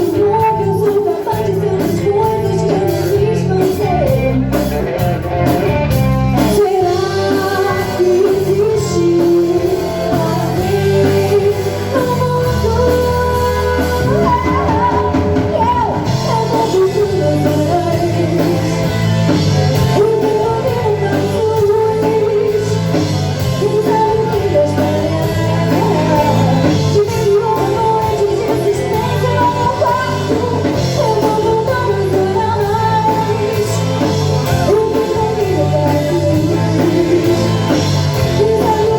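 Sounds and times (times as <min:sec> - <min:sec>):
bass guitar: 0:00.0 - 0:38.9
drums: 0:00.0 - 0:38.9
electric guitar: 0:00.0 - 0:38.9
lead singer: 0:00.0 - 0:38.9.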